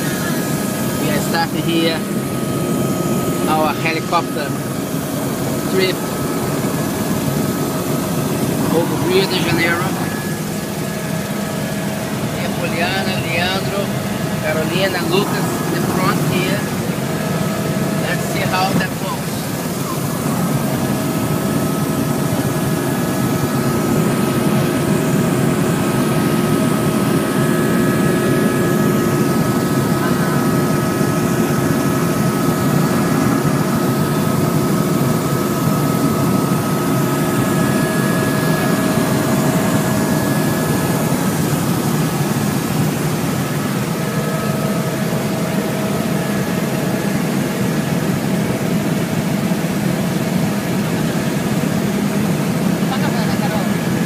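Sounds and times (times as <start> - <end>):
helicopter rotor rumble: 0.0 - 54.0
steady whining tones: 0.0 - 54.0.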